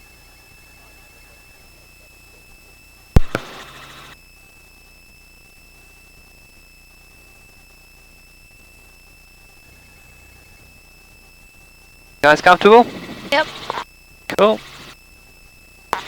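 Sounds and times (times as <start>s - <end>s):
hissy radio crackle: 3.2s - 4.2s, 12.2s - 15.0s
intercom clicks: 12.2s - 15.0s.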